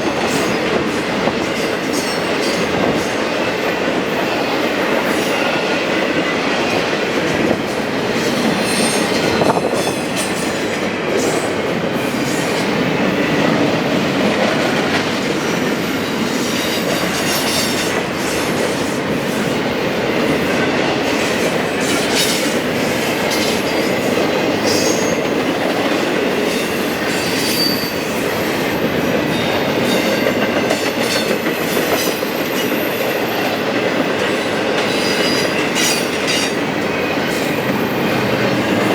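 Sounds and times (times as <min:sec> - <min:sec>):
train wheels rumbling on rails: 0:00.0 - 0:38.9
wheel squeals: 0:26.7 - 0:28.1.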